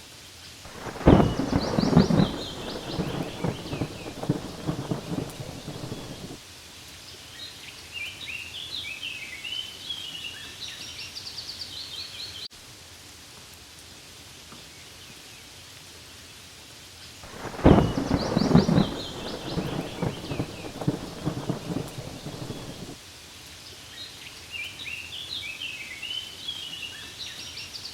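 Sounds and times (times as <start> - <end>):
rain: 0.0 - 27.9
thunder rumbling: 0.7 - 6.4, 17.3 - 23.0.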